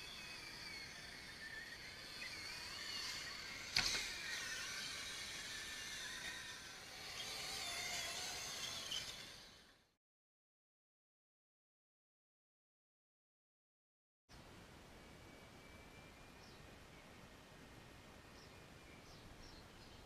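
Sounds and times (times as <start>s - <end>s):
toy excavator motors whining: 0.0s - 10.0s.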